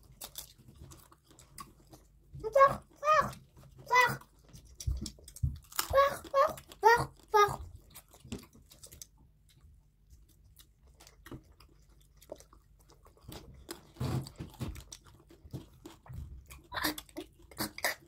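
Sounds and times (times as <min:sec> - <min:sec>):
chewing and crunching food: 0:00.0 - 0:18.0
wet mouth sounds: 0:16.6 - 0:18.0.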